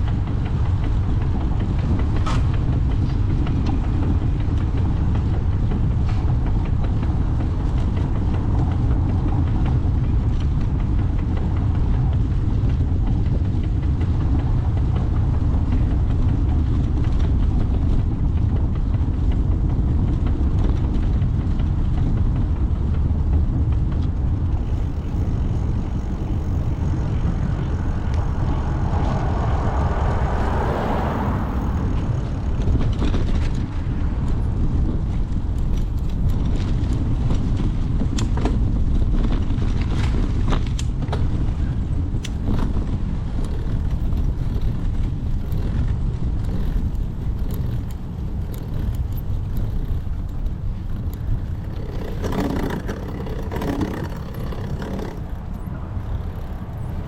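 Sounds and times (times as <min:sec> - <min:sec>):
sharp clicks and rattles: 0:00.0 - 0:57.0
wind and road noise from bicycle: 0:00.0 - 0:57.0
motor vehicle passing: 0:24.3 - 0:36.8, 0:41.4 - 0:57.0.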